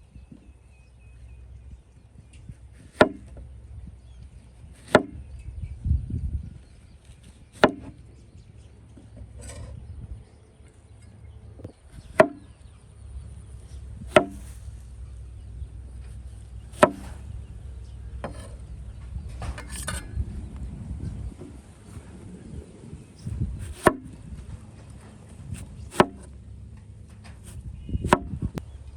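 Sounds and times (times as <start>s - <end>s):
knife chopping on wooden board: 2.8s - 3.3s, 4.8s - 5.2s, 7.6s - 7.9s, 12.1s - 12.5s, 14.1s - 14.6s, 16.8s - 17.2s, 23.6s - 24.1s, 25.6s - 26.3s, 27.4s - 28.4s.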